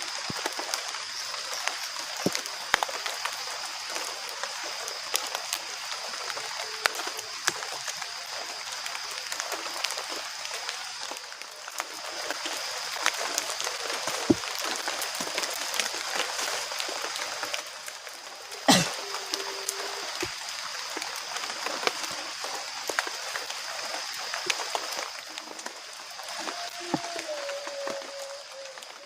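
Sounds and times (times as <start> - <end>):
drops ticking and splashing: 0.0 - 29.0
heavy rain in forest: 0.0 - 29.0.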